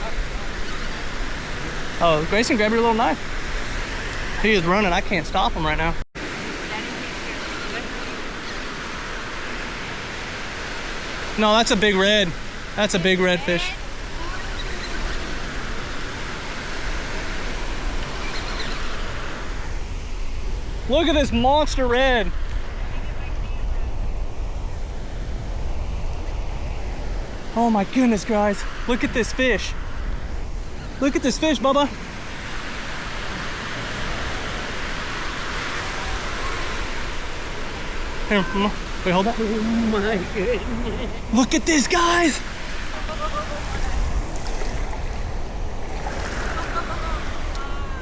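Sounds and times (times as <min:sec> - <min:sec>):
surf washing on beach: 0:00.0 - 0:48.0
wind: 0:00.0 - 0:48.0
wind rumble on microphone: 0:13.7 - 0:31.0.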